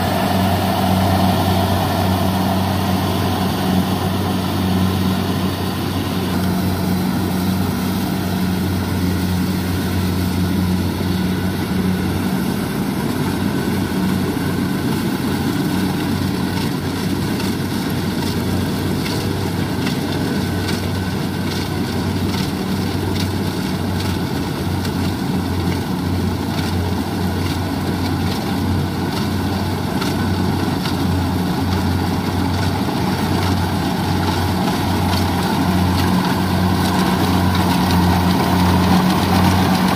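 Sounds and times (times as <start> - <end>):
combine harvester engine droning: 0.0 - 39.9
harvesting machinery rushing: 0.0 - 39.9.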